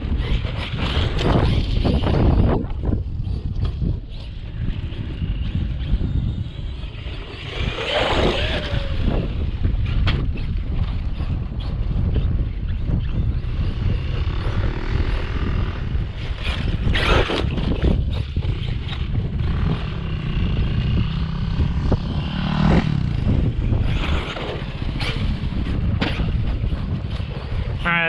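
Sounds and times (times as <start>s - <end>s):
wind rumble on microphone: 0.0s - 28.0s
electric motor whining: 0.4s - 10.4s.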